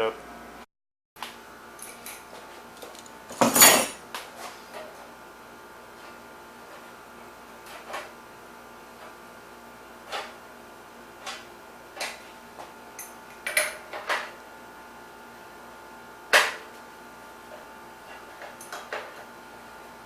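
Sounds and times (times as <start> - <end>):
hand tools clanking on metal: 3.3 - 4.0.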